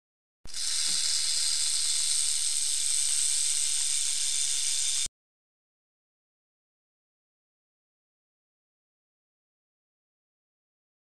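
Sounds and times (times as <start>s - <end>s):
rattlesnake hissing buzz: 0.5s - 5.1s.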